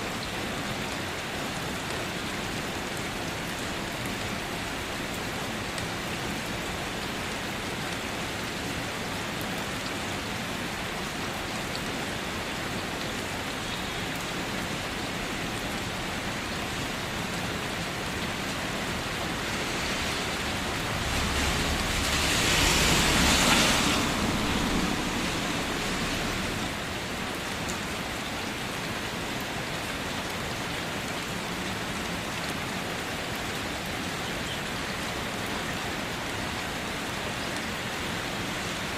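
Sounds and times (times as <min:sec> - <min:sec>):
rain falling on a car: 0:00.0 - 0:38.9
rushing swell with low rumble: 0:19.3 - 0:26.8.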